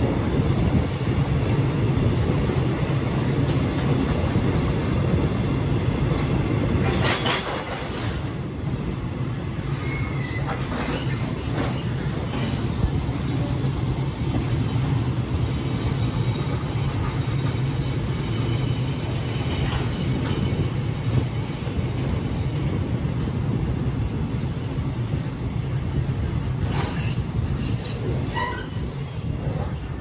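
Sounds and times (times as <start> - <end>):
wheels rumbling on rail: 0.0 - 30.0
wheels squeaking and knocking: 9.6 - 12.6, 26.6 - 29.2.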